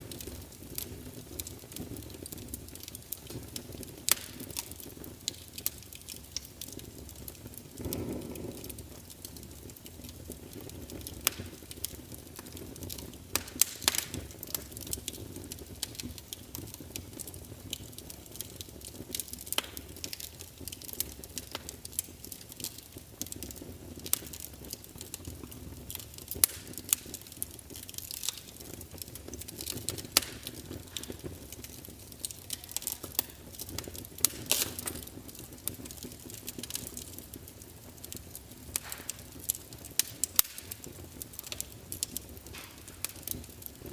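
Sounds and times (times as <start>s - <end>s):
wood fire crackling: 0.0s - 43.9s.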